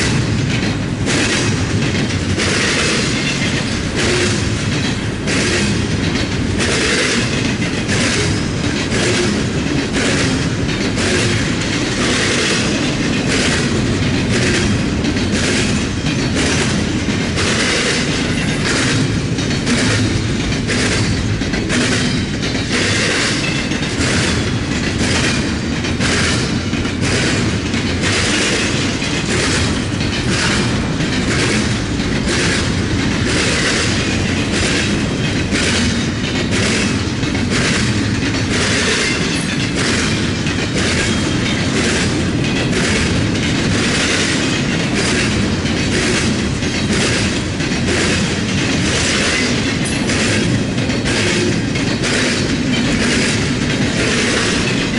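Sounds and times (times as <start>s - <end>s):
freight train rumble: 0.0s - 54.9s
train wheels clacking over rail joints: 0.0s - 54.9s.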